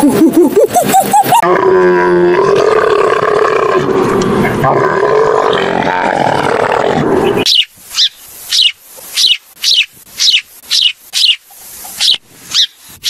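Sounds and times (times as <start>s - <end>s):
sparrows chirping: 7.2s - 12.8s.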